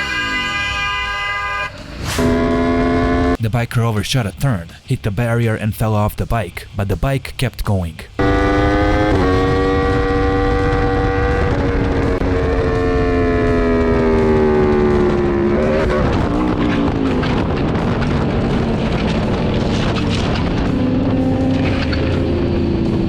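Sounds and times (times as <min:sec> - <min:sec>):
wind and road noise: 0:00.0 - 0:03.4, 0:08.2 - 0:23.0
motorcycle engine running: 0:08.2 - 0:23.0.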